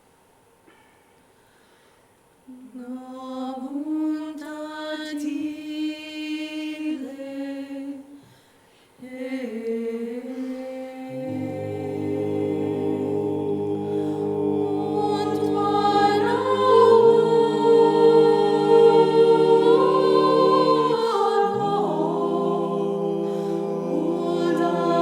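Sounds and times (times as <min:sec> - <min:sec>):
a cappella choir harmony: 0:02.5 - 0:08.3, 0:09.0 - 0:25.0
solo voice singing held notes: 0:09.0 - 0:25.0.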